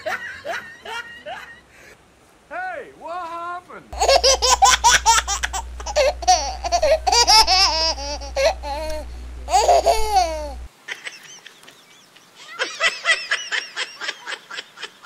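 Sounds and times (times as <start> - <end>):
high-pitched giggling laughter: 0.0 - 1.7, 4.0 - 8.9, 9.5 - 15.0
steady low hum: 4.0 - 10.7.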